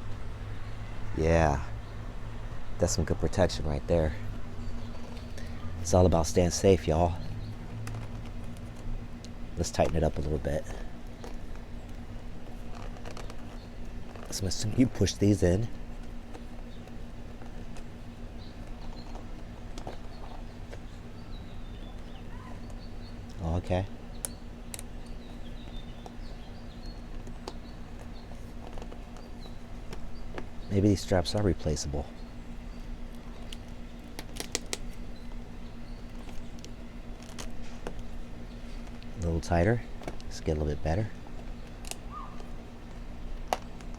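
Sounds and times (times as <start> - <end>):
low hum: 0.0 - 43.9
plastic buckles clicking: 16.0 - 31.5, 33.1 - 35.4, 36.0 - 39.2, 39.9 - 40.4, 41.1 - 43.9.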